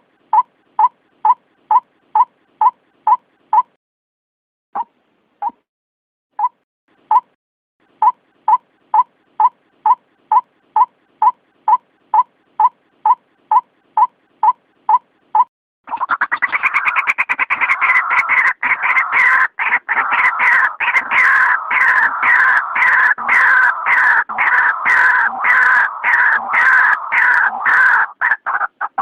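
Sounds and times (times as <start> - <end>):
waterhen calling: 15.9 - 29.0.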